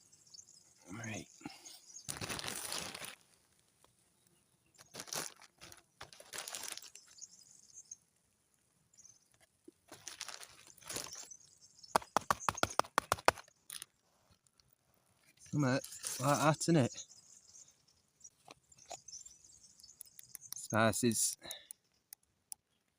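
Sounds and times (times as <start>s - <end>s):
rustling and crinkling handling: 2.0s - 4.0s, 4.7s - 7.2s, 9.4s - 11.4s, 13.4s - 16.6s.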